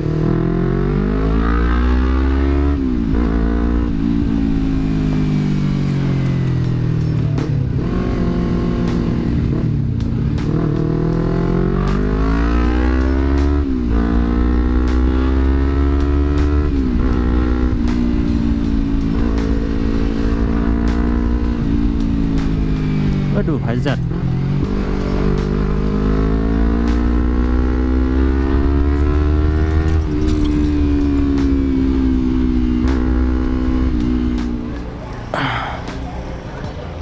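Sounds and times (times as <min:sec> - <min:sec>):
motorcycle engine under throttle: 0:00.0 - 0:34.9.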